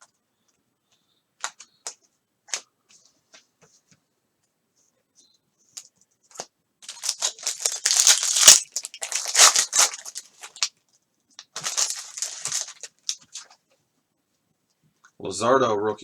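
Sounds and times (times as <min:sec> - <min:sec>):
foil wrapper crinkling and tearing: 0:06.8 - 0:10.8, 0:11.4 - 0:13.6.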